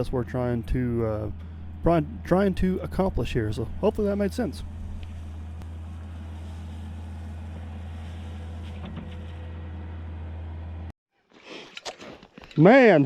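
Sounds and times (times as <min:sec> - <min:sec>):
engine idling: 0:00.0 - 0:10.9.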